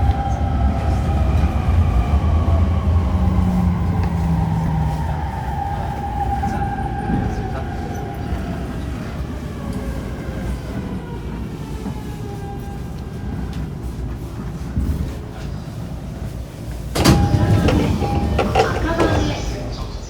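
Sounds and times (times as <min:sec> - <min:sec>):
wheels rumbling on rail: 0:00.0 - 0:20.0
train motor whine: 0:16.9 - 0:20.0.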